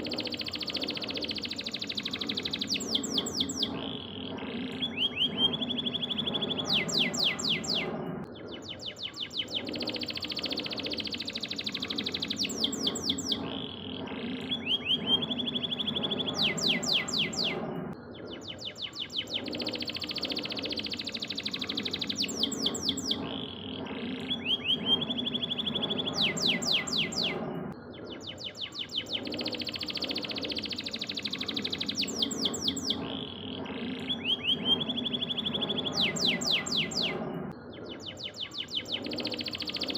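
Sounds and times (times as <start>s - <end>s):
canary singing trills: 0.0s - 39.9s
steady low background sound: 0.0s - 39.9s.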